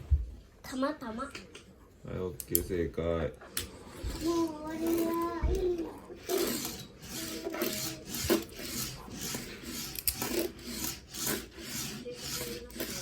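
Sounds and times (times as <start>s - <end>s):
pencil scratching on paper: 3.8s - 13.0s.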